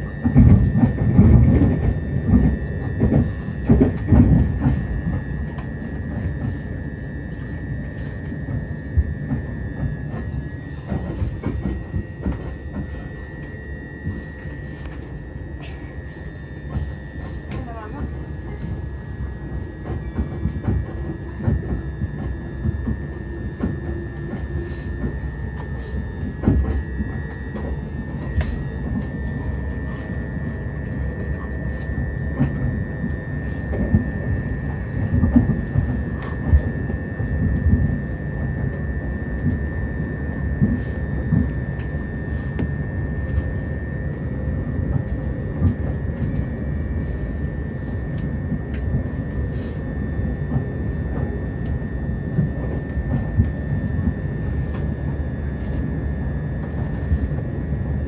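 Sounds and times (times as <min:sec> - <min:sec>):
constant high whine: 0:00.0 - 0:58.0
train wheels rumbling on rails: 0:00.0 - 0:58.0.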